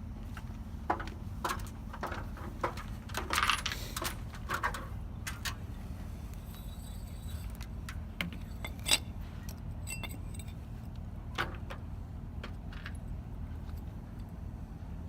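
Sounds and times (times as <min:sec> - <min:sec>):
steady low rumble: 0:00.0 - 0:15.0
metallic tool clicks and clinks: 0:09.8 - 0:10.6.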